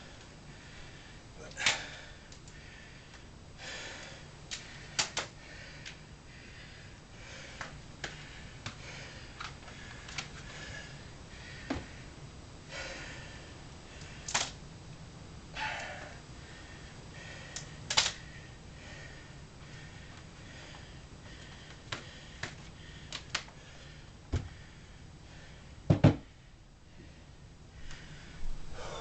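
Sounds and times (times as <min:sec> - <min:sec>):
sharp clicks and rustles: 0:14.0 - 0:14.6, 0:17.6 - 0:18.2
forceful hissing breaths: 0:15.5 - 0:29.0.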